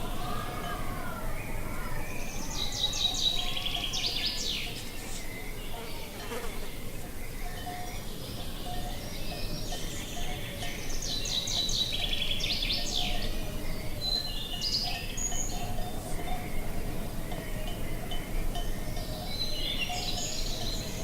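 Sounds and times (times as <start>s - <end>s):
steady low background noise: 0.0s - 21.0s.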